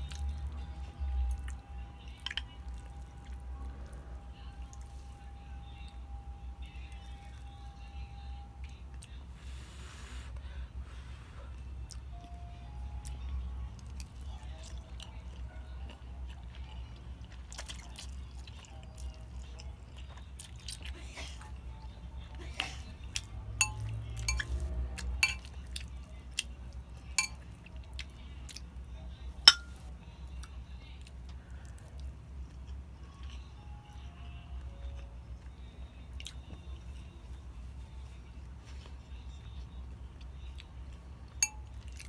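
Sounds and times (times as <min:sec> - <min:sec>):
mouth chewing: 0:13.8 - 0:21.5
utensils clinking against dish: 0:23.6 - 0:24.6, 0:25.2 - 0:25.6, 0:27.2 - 0:27.4, 0:29.5 - 0:29.8.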